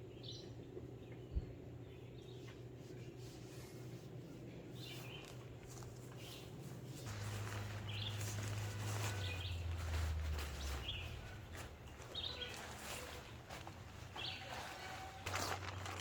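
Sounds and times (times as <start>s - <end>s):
low steady hum: 0.0s - 16.0s
bird chirping: 7.1s - 13.5s.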